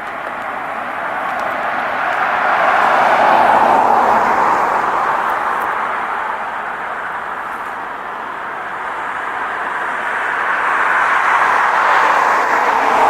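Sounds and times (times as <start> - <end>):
passing vehicles road noise: 0.0 - 13.0.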